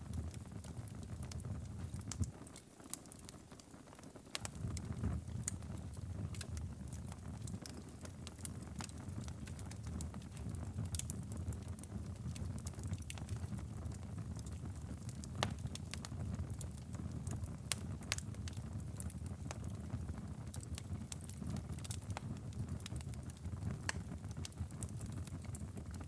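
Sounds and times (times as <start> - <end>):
low rumble of fire: 0.0 - 26.0
wood fire crackling: 0.0 - 26.0
sharp pops and clicks: 15.3 - 15.7.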